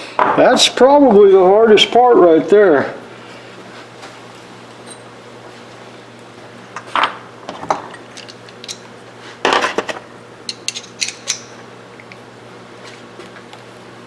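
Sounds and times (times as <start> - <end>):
metal rifle parts clinking: 10.5 - 12.2.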